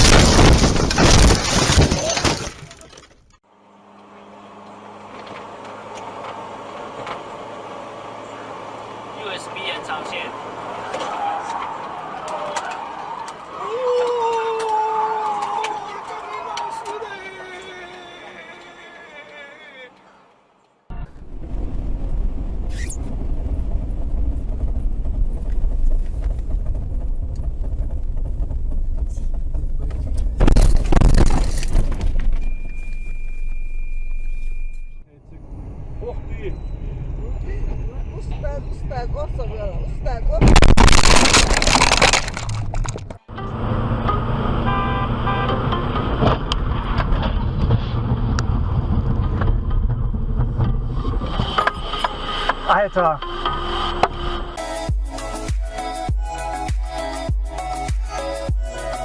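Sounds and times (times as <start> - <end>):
glass crashing and breaking: 0.0 - 3.4, 30.4 - 31.9, 40.4 - 43.2
car engine humming: 2.3 - 13.9, 16.9 - 59.0.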